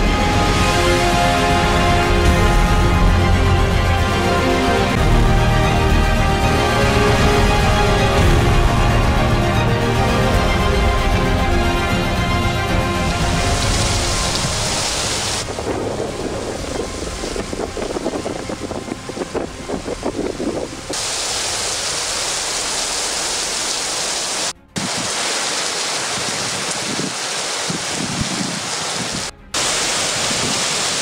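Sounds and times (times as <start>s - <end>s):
heavy rain: 0.0s - 31.0s
wind buffeting: 12.6s - 22.0s, 24.8s - 31.0s.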